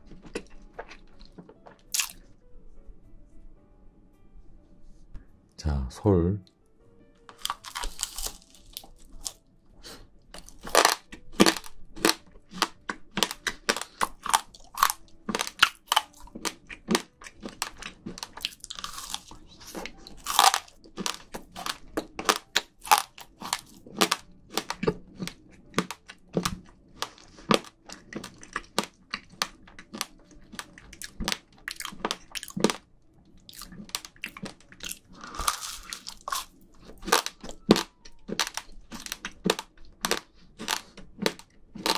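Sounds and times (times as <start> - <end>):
person crunching while chewing: 0.0 - 2.3, 7.3 - 41.9.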